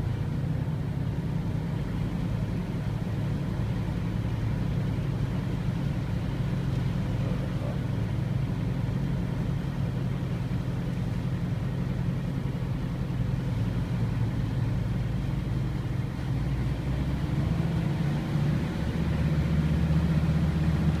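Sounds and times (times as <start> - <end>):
car engine humming: 0.0 - 21.0.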